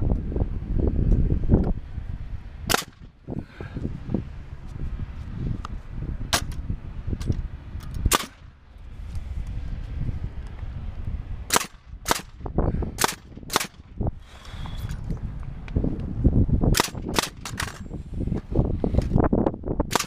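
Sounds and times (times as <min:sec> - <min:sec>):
pneumatic nailer shots: 0:02.7 - 0:03.1, 0:06.3 - 0:06.6, 0:08.0 - 0:08.5, 0:11.5 - 0:12.4, 0:13.0 - 0:14.4, 0:16.7 - 0:17.8.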